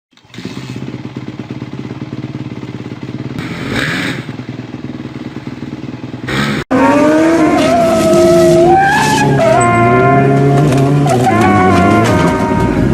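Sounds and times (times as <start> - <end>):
motorcycle engine idling: 0.1 - 6.6.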